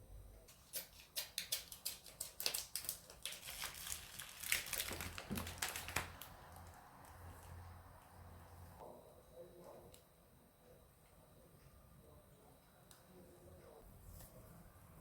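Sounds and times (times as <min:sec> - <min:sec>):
crinkling and crackling: 0:01.8 - 0:07.6.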